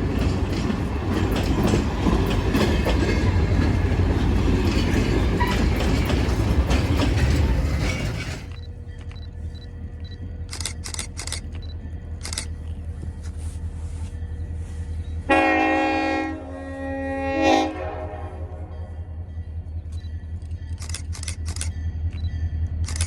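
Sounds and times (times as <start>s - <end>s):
low rumble of passing train: 0.0s - 23.0s
sharp clicks: 10.0s - 12.6s, 19.9s - 23.0s
locomotive air horn blast: 15.3s - 18.7s.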